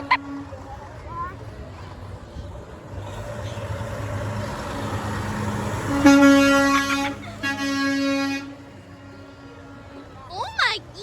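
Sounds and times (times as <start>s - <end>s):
truck air horn blasts: 0.0s - 0.7s, 5.8s - 10.2s
road noise: 0.0s - 11.0s
truck engine passing: 0.0s - 11.0s.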